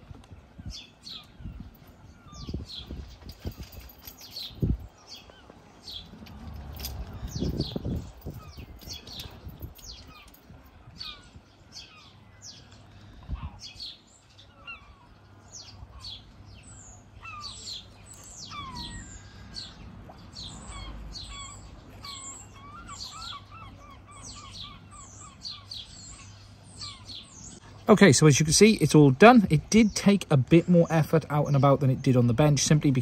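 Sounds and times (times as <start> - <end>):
wind rumble on microphone: 0.0 - 5.2, 5.8 - 11.5, 13.1 - 13.9
small birds chirping: 0.0 - 33.0.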